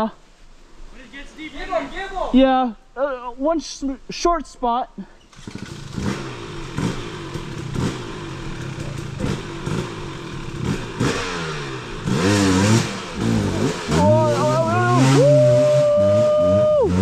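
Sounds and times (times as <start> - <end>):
off-road vehicle engine revving: 5.3 - 17.0.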